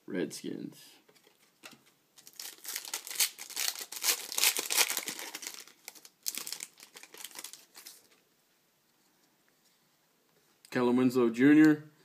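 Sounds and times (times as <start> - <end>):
wrapper tearing and crinkling: 2.2 - 8.1.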